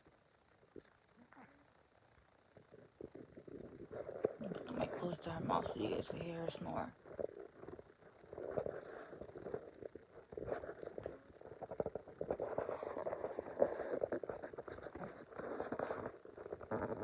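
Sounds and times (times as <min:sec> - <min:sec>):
dog snoring: 0:08.4 - 0:17.0.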